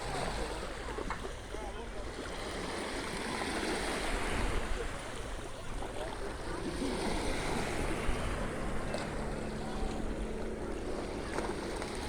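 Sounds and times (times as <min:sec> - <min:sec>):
water lapping gently: 0:00.0 - 0:12.0.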